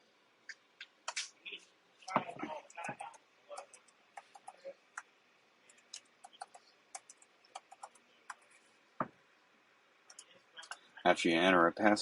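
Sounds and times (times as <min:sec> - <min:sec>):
computer keyboard typing: 0:02.7 - 0:05.1, 0:05.7 - 0:08.4, 0:10.1 - 0:10.8.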